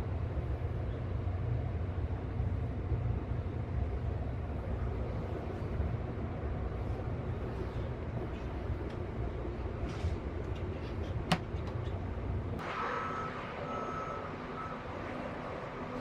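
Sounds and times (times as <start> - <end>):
electronic warning beeps: 12.9 - 14.9.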